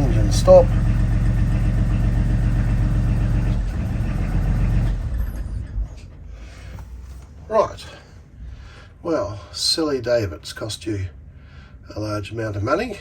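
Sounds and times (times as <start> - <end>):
marine diesel engine idling: 0.0 - 5.5.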